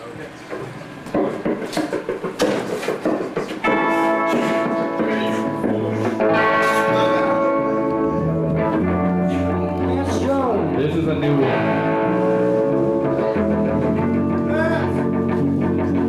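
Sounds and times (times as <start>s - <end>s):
electric guitar chords ringing: 3.6s - 16.0s
picked guitar notes: 3.6s - 16.0s.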